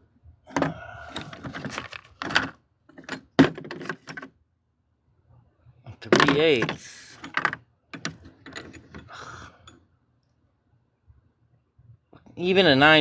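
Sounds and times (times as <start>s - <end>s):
metal tools clinking and rattling: 6.1s - 9.8s.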